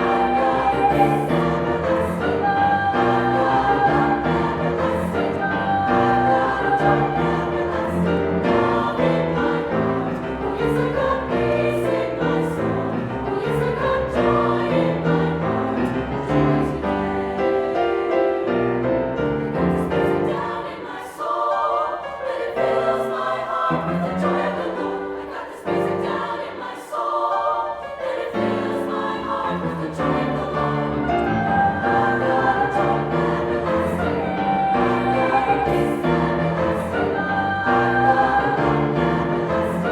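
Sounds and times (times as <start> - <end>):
choir singing in chords: 0.0 - 39.9.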